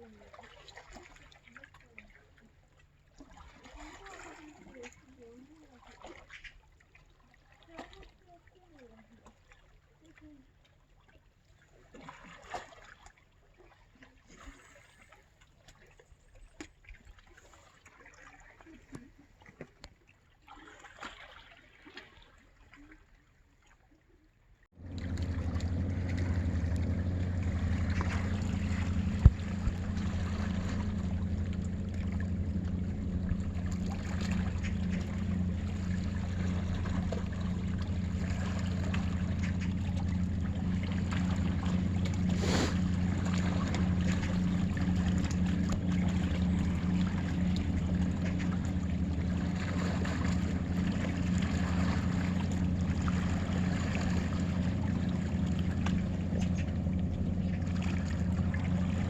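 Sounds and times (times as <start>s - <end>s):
boat engine droning: 24.7s - 59.0s.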